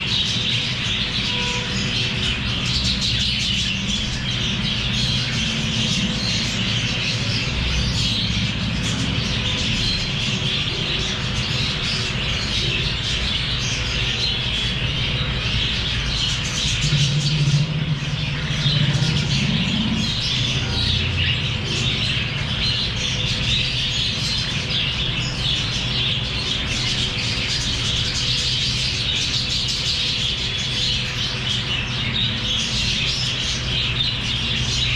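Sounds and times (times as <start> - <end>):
parrots chirping and chattering: 0.0 - 34.9
low rumble: 14.8 - 21.7.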